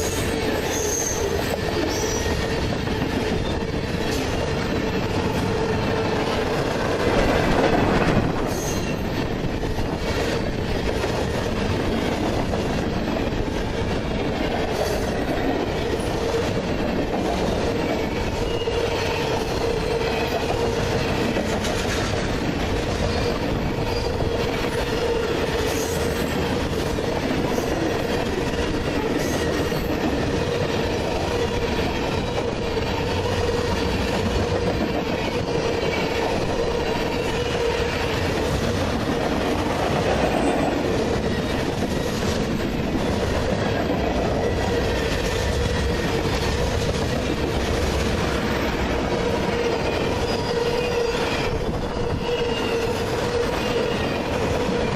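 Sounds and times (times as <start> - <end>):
train wheels rumbling on rail: 0.0 - 54.9
wheel squeal: 50.1 - 54.4.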